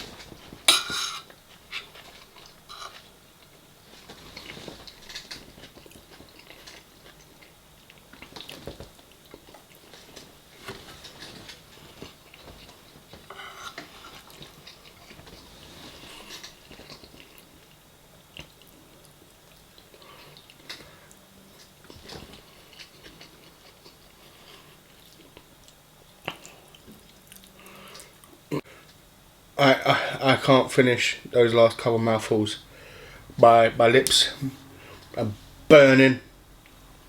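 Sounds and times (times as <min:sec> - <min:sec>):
person chewing food: 0:01.8 - 0:29.0.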